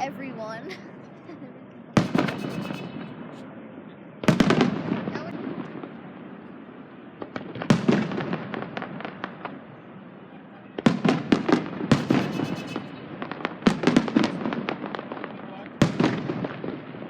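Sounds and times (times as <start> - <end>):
fireworks bangs: 2.0 - 17.0
firework crackles: 10.8 - 17.0.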